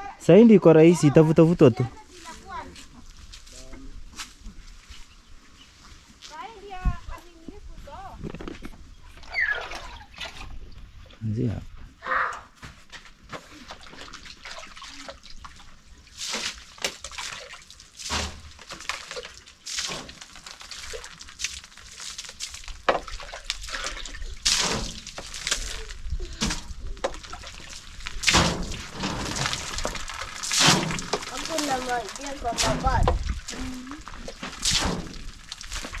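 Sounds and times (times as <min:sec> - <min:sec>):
water splashing: 0:09.2 - 0:10.7, 0:13.5 - 0:36.0.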